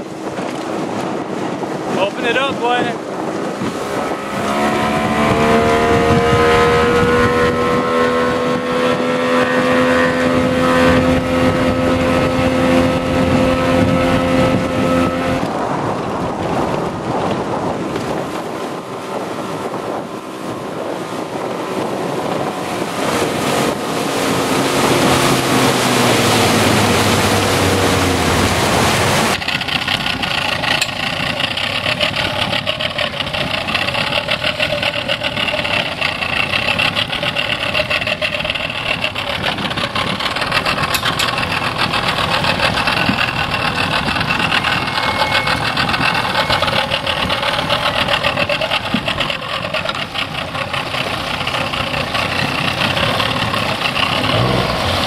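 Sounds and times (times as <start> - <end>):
outboard motor idling: 0.0 - 55.0
outboard motor running: 0.0 - 55.0
rushing water: 0.0 - 55.0
wind: 0.0 - 55.0.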